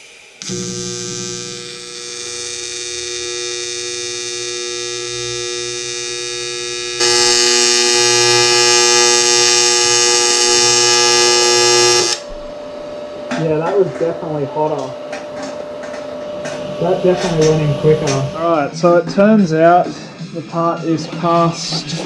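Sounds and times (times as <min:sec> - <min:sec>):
welding arc buzzing: 0:00.0 - 0:13.3.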